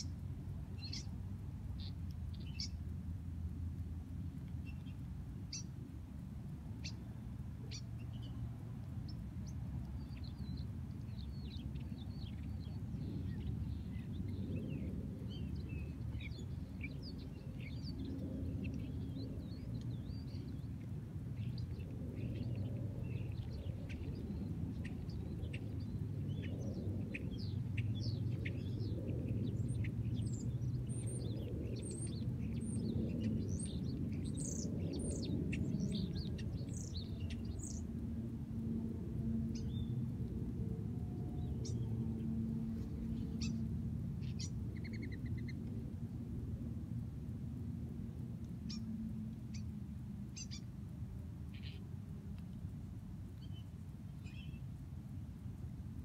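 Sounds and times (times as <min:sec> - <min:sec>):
birds chirping: 0:00.0 - 0:02.9, 0:06.8 - 0:38.0, 0:39.5 - 0:40.3, 0:41.0 - 0:45.9, 0:48.6 - 0:50.7
low background rumble: 0:00.0 - 0:56.0.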